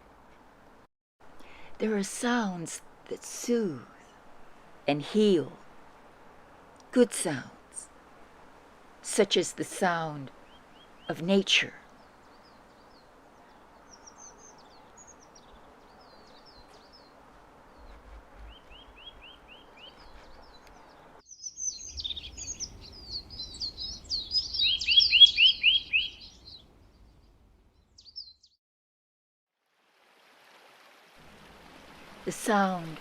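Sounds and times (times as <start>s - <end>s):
songbirds singing and chirping: 9.4s - 28.6s.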